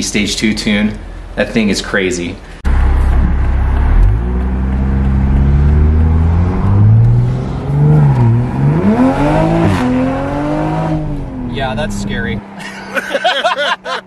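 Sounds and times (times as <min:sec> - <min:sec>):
car engine accelerating: 0:02.6 - 0:12.6.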